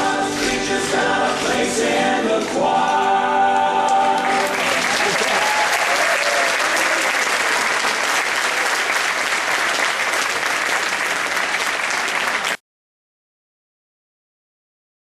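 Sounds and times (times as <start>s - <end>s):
audience applauding: 3.9s - 12.6s.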